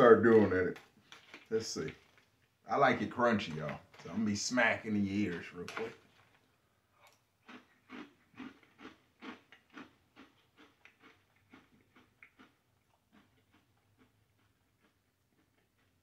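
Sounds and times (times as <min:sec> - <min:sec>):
person chewing crunchy cereal: 0:01.0 - 0:02.4, 0:05.7 - 0:16.0.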